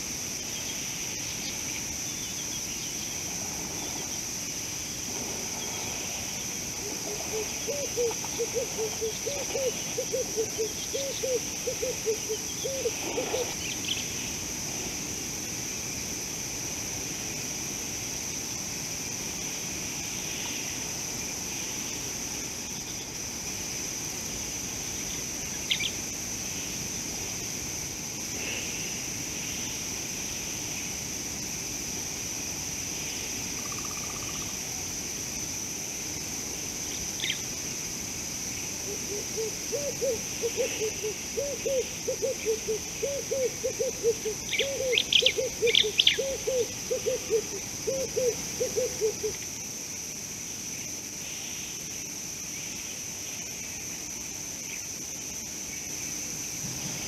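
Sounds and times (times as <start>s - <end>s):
insects droning: 0.0s - 57.0s
bird hooting: 6.8s - 13.6s, 38.9s - 49.3s.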